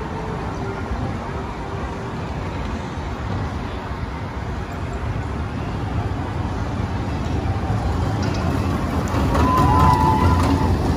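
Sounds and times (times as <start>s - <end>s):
roller coaster wheels rumbling: 0.0s - 10.9s.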